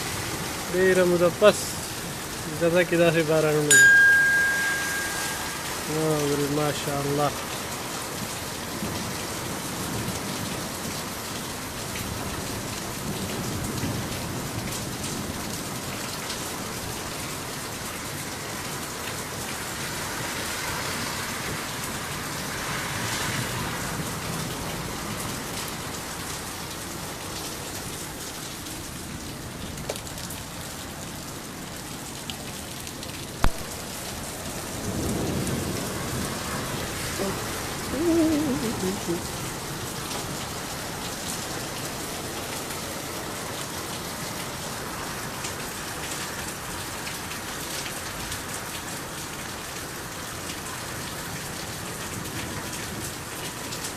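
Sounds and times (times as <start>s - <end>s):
heavy rain pouring: 0.0s - 53.9s
sharp click: 33.4s - 33.6s.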